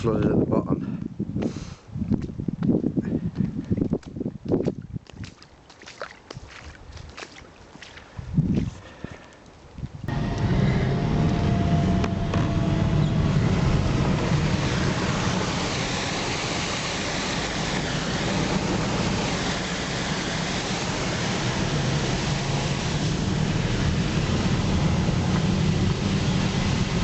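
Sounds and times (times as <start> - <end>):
wind buffeting microphone: 0.0 - 5.4, 8.0 - 27.0
wind rushing: 10.0 - 27.0
heavy rain: 10.1 - 27.0.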